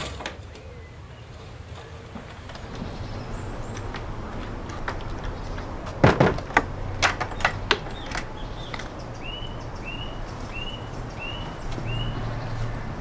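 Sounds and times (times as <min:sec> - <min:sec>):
knocks and clatters: 0:02.2 - 0:09.2
bird chirping: 0:02.5 - 0:13.0.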